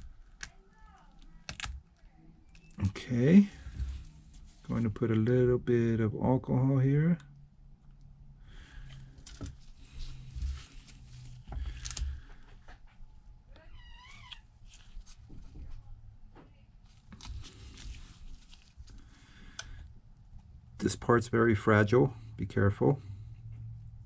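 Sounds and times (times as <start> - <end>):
low steady hum: 0.0 - 13.8.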